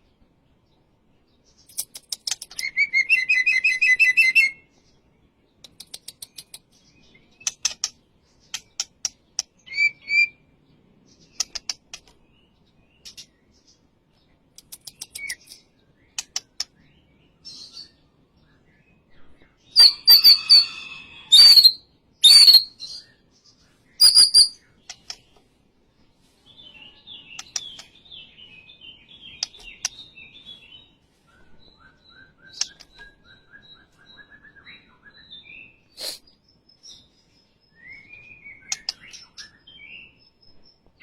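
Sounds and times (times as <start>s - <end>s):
songbird clicking and singing: 0.0s - 25.6s, 26.5s - 41.0s
bird whistled notes: 19.8s - 22.8s, 24.0s - 24.6s.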